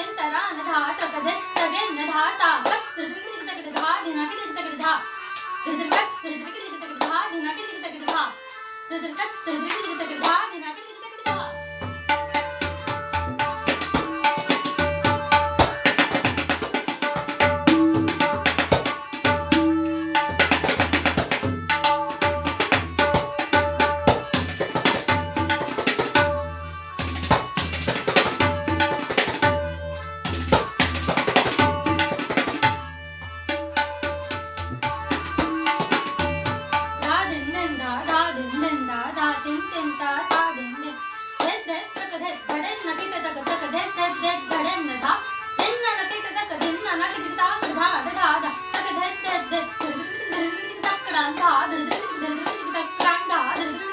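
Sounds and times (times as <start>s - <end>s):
tabla drumming: 11.2s - 38.2s.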